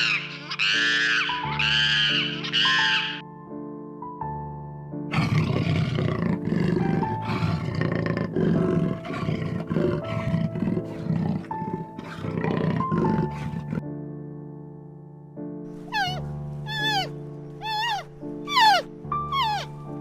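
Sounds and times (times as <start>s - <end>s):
background music with held notes: 0.0s - 20.0s
large animal vocalizing: 5.1s - 13.8s, 15.9s - 19.8s.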